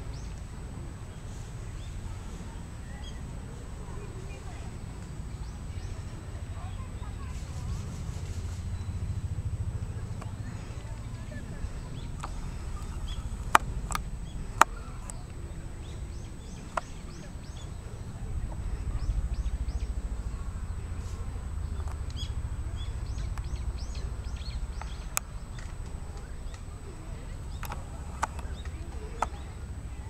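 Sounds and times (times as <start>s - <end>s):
small birds chirping: 0.0s - 30.0s
low rumble: 4.7s - 30.0s
sharp clicks: 12.0s - 17.3s, 23.1s - 29.5s.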